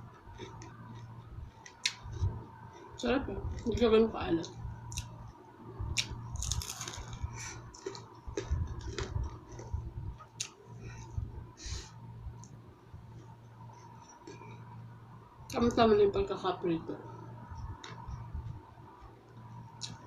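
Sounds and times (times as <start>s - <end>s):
person chewing food: 0.0s - 3.7s, 5.9s - 14.7s.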